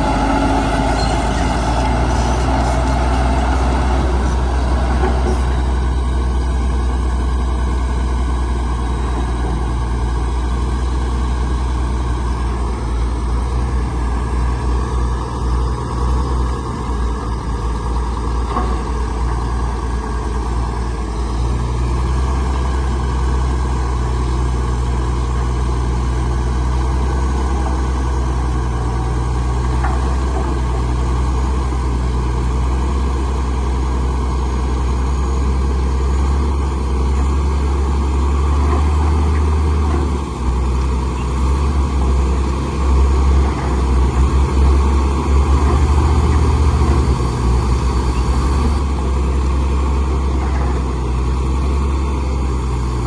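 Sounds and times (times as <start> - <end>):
heavy diesel engine droning: 0.0 - 53.0.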